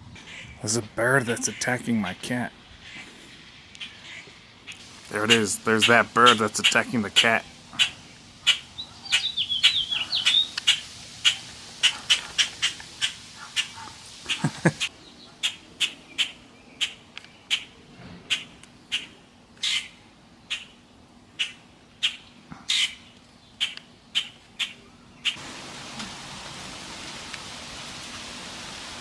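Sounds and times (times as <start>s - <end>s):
steady hiss: 0.0s - 15.0s, 25.4s - 29.0s
bird alarm calls: 3.8s - 14.4s, 18.3s - 20.8s, 21.4s - 25.4s.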